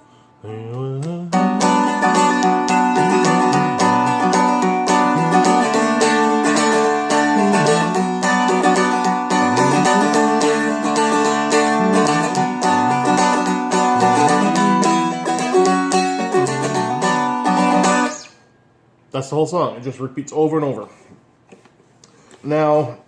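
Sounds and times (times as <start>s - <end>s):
dulcimer strummed: 1.4s - 18.2s.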